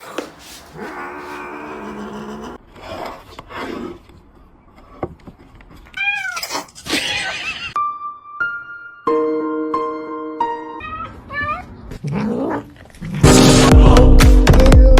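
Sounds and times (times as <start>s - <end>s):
cat meowing: 6.0s - 6.6s, 10.8s - 11.7s.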